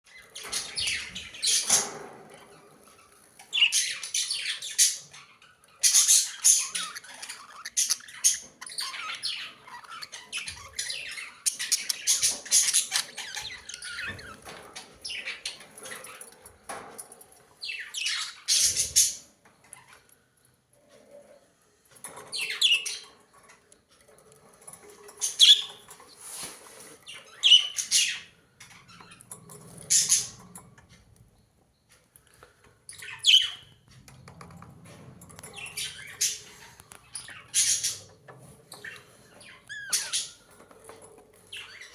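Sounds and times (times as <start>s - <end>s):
budgerigars chattering: 25.4s - 25.8s, 33.0s - 33.7s.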